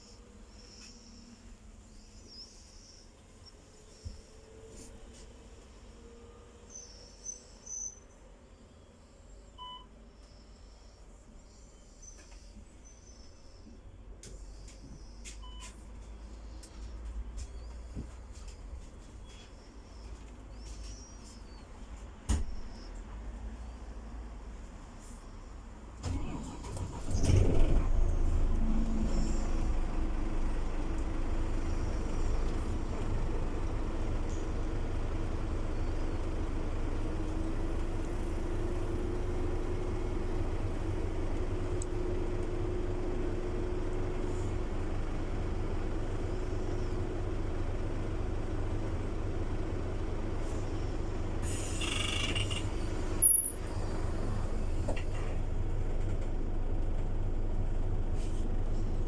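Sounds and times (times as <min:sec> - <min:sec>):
bus engine drone with whine: 0:00.0 - 0:08.2, 0:08.8 - 0:59.0
air brake hiss: 0:51.4 - 0:52.5.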